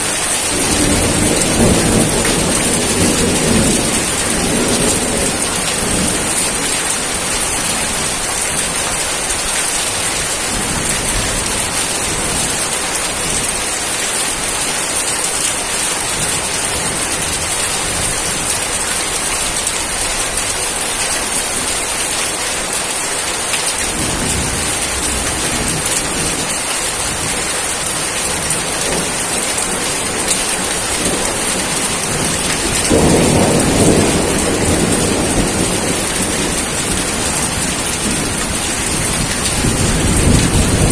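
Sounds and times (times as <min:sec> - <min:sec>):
thunder rumbling: 0:00.0 - 0:08.8, 0:23.9 - 0:40.9
heavy rain falling: 0:00.0 - 0:40.9.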